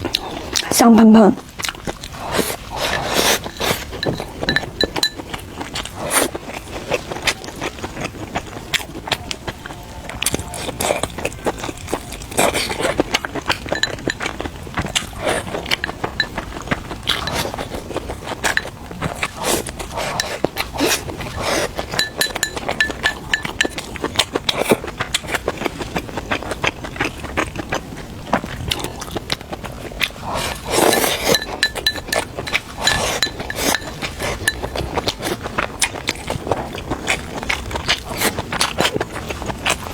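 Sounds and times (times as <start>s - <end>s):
close-up chewing: 0.0s - 39.9s
utensils clinking against bowl: 2.3s - 5.9s, 11.6s - 24.1s, 30.3s - 36.0s.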